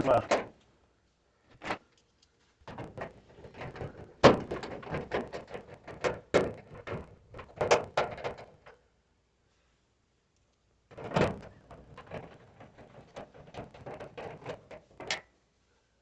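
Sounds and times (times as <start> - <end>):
sheet-metal clunks and rattles: 0.0 - 0.6, 2.7 - 8.8, 10.9 - 15.3.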